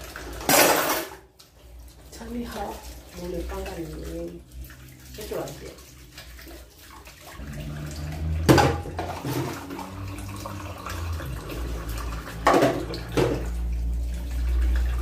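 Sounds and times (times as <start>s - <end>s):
water splashing: 0.0s - 15.0s
dishes clattering: 0.1s - 1.3s, 8.4s - 10.0s, 11.7s - 13.7s.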